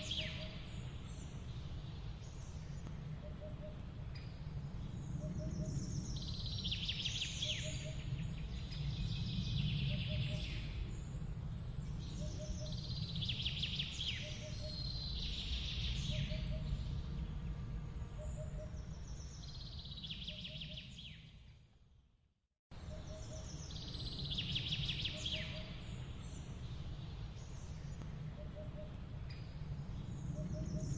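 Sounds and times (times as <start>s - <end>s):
songbird singing: 0.0s - 21.7s, 22.7s - 30.9s
steady low rumble: 22.7s - 30.9s.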